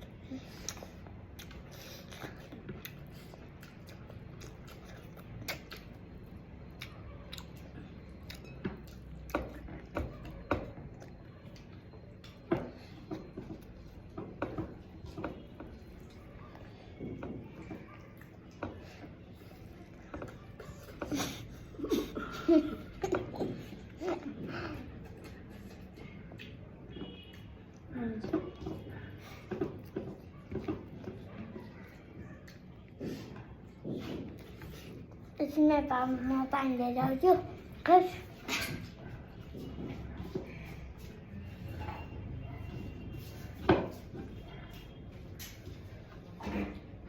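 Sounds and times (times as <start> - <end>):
person chewing food: 0.0 - 35.4
mouth clicks and smacks: 0.6 - 6.0.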